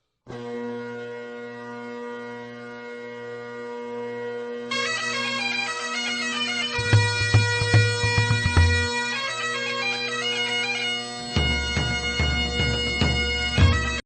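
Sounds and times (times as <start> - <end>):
bagpipe music: 0.3 - 14.0
drum beats: 6.8 - 9.1, 11.4 - 14.0.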